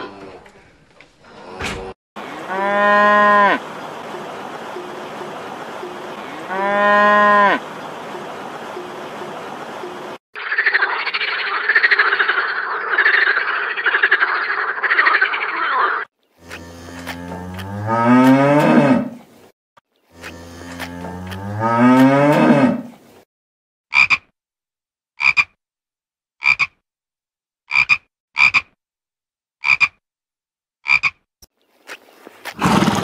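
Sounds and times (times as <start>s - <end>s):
cows mooing: 1.3s - 9.6s, 16.4s - 19.2s, 20.1s - 22.9s
shallow stream rushing: 3.3s - 10.2s
frog croaking: 10.4s - 16.6s, 23.9s - 24.2s, 25.2s - 25.6s, 26.4s - 26.8s, 27.7s - 28.8s, 29.6s - 30.0s, 30.8s - 31.2s.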